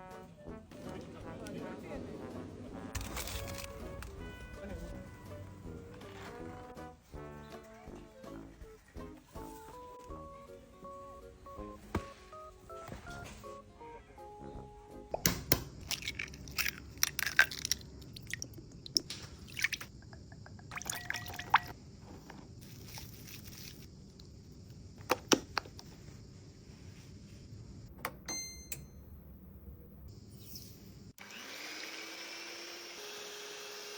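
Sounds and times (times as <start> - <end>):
utensils and containers clattering: 15.8 - 17.8
liquid pouring or stirring: 15.8 - 21.8.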